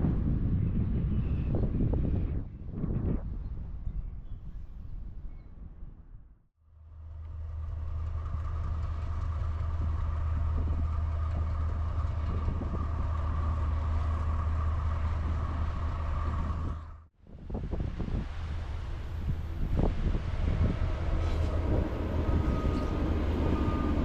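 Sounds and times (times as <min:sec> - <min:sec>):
diesel locomotive engine running: 0:06.6 - 0:24.0.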